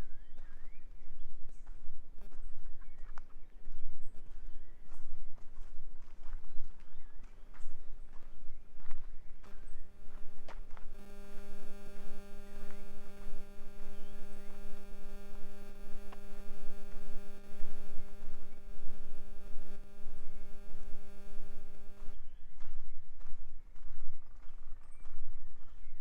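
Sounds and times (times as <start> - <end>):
steady hum: 7.6 - 22.2.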